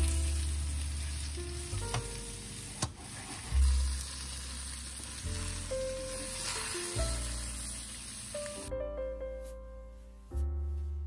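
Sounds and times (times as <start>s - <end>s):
potato wedges sizzling in oil: 0.0s - 8.7s.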